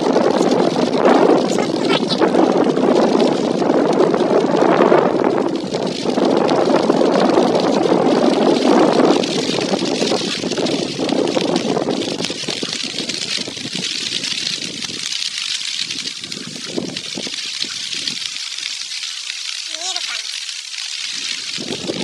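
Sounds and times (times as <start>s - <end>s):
wind on microphone: 0.0s - 19.0s, 21.0s - 22.0s
heavy rain: 0.0s - 22.0s
rushing storm water: 0.0s - 22.0s.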